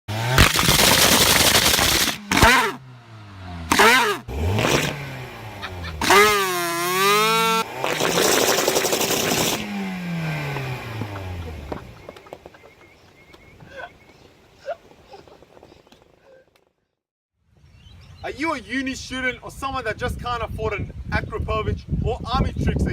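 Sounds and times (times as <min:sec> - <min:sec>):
car engine revving through loud exhaust: 0:00.1 - 0:12.2.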